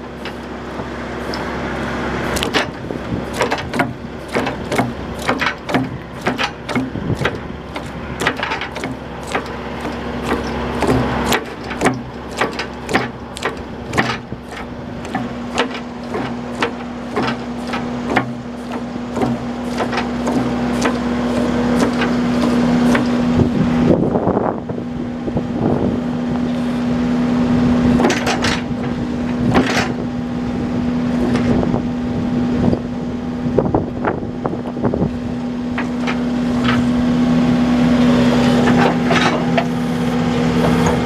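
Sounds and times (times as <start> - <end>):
excavator engine humming: 0.0 - 41.0
machine clanks and knocks: 2.4 - 23.6, 27.9 - 30.1, 35.7 - 37.0, 38.6 - 39.7, 40.6 - 41.0.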